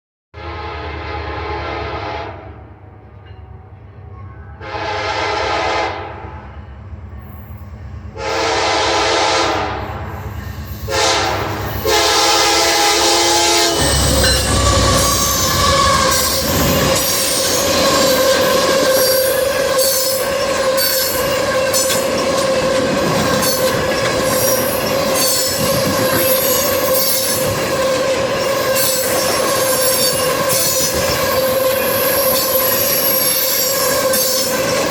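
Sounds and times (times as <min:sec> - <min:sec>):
locomotive horn: 0:00.4 - 0:03.0, 0:04.5 - 0:06.4, 0:08.2 - 0:10.2, 0:10.9 - 0:34.9
wheels squealing on rails: 0:06.5 - 0:34.9
train rushing clatter: 0:08.1 - 0:34.9.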